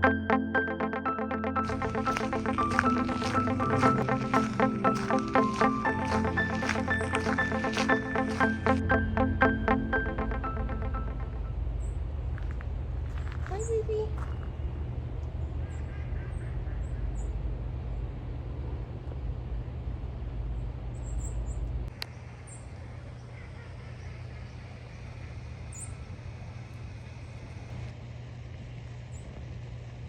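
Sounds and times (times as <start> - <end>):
low outdoor rumble: 1.6 - 30.0.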